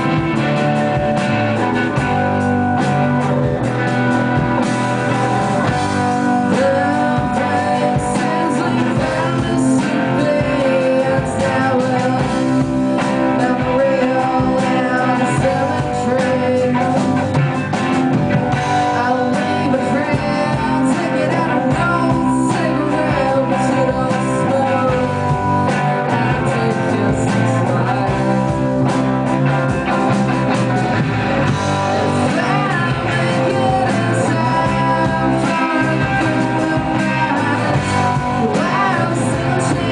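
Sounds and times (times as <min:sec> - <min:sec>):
guitar: 0:00.0 - 0:39.9
rock band playing: 0:00.0 - 0:39.9
person singing: 0:05.0 - 0:17.4, 0:18.5 - 0:29.4, 0:31.4 - 0:39.9.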